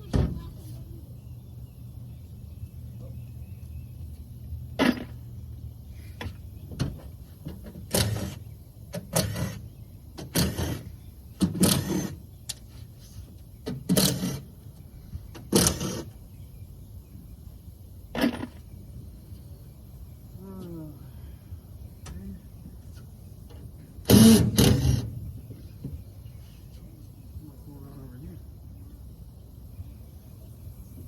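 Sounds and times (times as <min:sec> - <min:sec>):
power tool bursts: 0:10.2 - 0:12.2, 0:15.5 - 0:16.1, 0:24.0 - 0:25.1.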